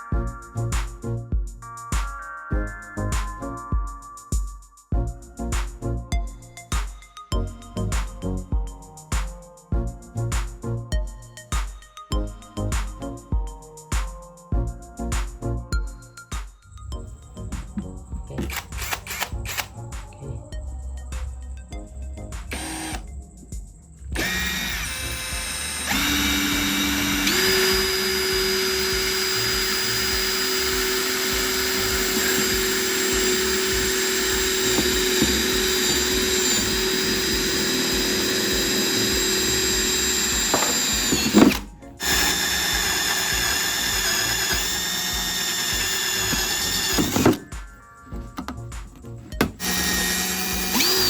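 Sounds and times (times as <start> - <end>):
electric drill whining: 18.4 - 19.7, 22.5 - 23.0, 24.2 - 47.5, 49.4 - 51.0.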